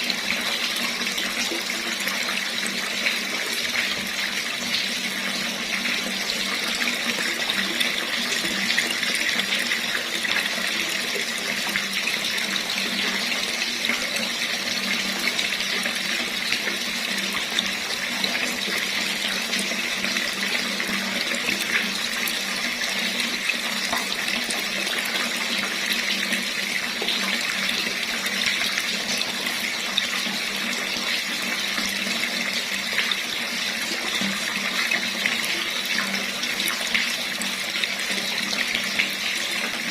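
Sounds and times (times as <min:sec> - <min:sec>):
tap water running: 0:00.0 - 0:39.9.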